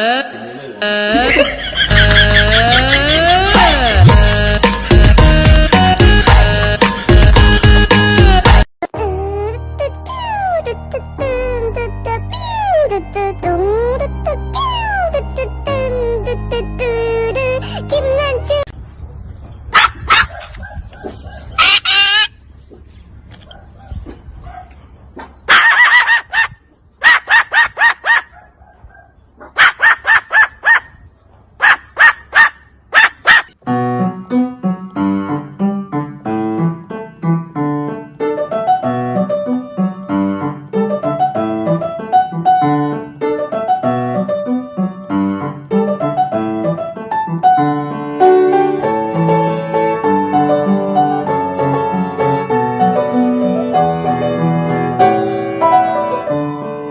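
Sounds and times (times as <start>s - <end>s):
piano music: 0.8s - 18.7s, 33.6s - 56.9s
dog barking sharply: 19.8s - 21.8s, 23.5s - 30.9s, 31.6s - 33.6s.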